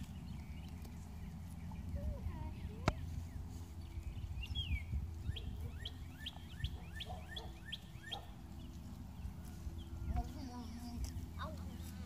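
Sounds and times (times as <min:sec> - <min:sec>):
low rumble: 0:00.0 - 0:06.9
songbird singing: 0:00.0 - 0:12.0.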